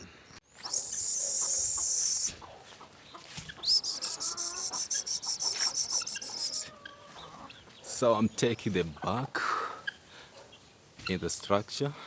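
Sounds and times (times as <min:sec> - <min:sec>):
high-pitched sustained chicken call: 0:00.6 - 0:02.4, 0:03.7 - 0:07.0
chickens clucking: 0:00.6 - 0:11.6.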